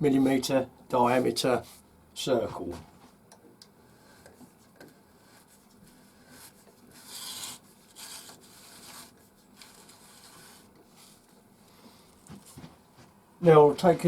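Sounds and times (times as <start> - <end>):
pencil compass scratching on wood: 6.9 - 11.2.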